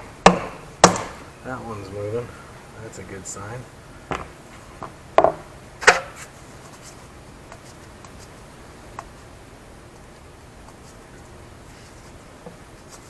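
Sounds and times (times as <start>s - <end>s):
sharp knocks: 0.0s - 1.3s, 4.1s - 6.2s.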